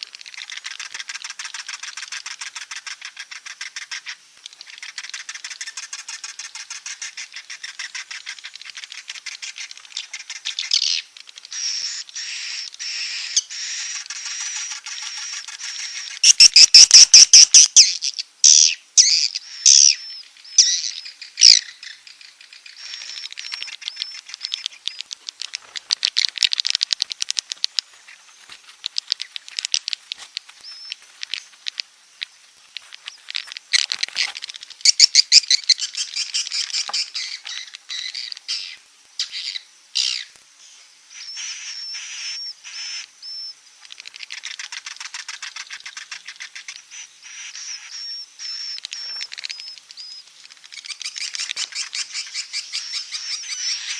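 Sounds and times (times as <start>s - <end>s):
swiftlets twittering: 19.4s - 33.8s.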